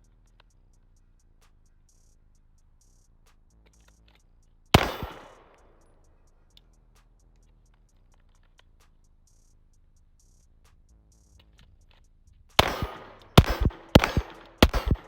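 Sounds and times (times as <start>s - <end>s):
music with light ticking beat: 0.0s - 15.0s
pistol shot: 4.8s - 5.6s, 12.6s - 15.0s.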